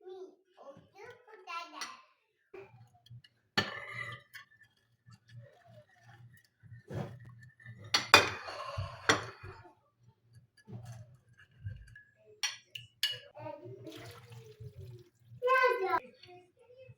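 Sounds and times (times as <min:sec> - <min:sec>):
dishes and cutlery clinking: 0:02.6 - 0:15.2.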